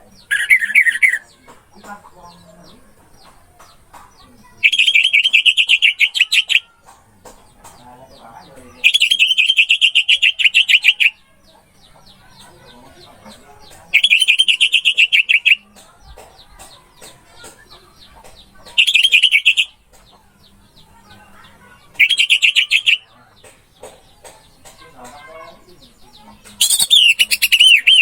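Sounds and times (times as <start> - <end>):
soft bird chirps: 0.0 - 1.6, 16.7 - 28.0.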